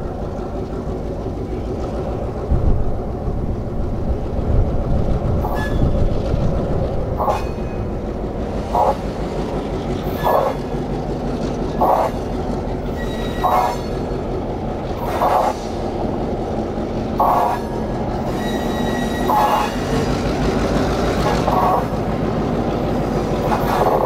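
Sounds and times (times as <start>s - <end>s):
diesel train engine rumble: 0.0s - 24.0s
metallic wheel clank on rail: 4.9s - 24.0s.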